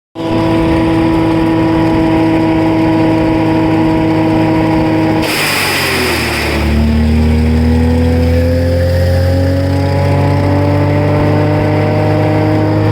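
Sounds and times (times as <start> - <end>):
wood chipper engine running: 0.2 - 9.5
harsh rushing noise: 5.0 - 7.9.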